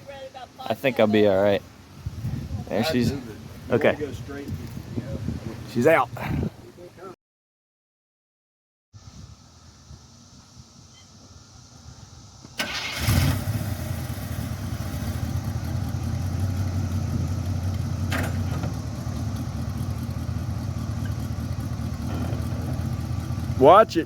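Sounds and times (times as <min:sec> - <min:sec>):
truck engine starting and idling: 0:12.4 - 0:24.0.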